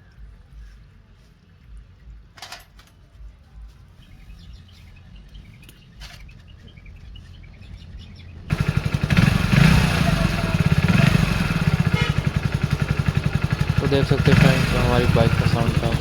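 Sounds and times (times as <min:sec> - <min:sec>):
low uneven rumble: 0:03.2 - 0:16.0
small birds chirping: 0:03.8 - 0:16.0.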